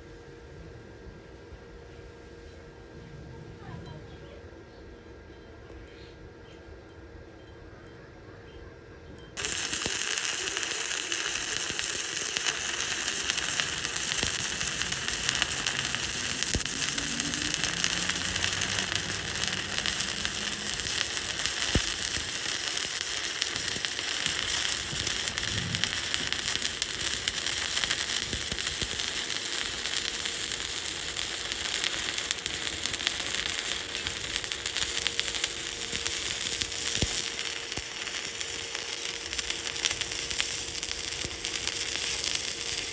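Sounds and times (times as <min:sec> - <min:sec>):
welding arc crackling: 0:09.4 - 0:42.9.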